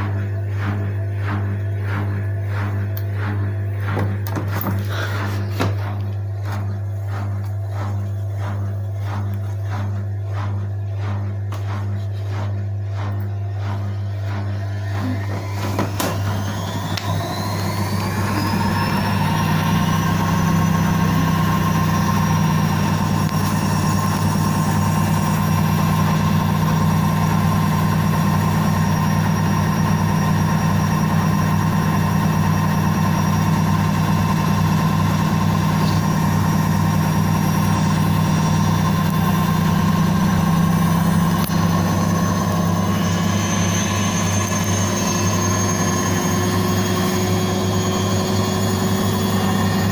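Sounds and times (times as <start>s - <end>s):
low hum: 0.0s - 49.9s
washing machine motor whine: 0.0s - 49.9s.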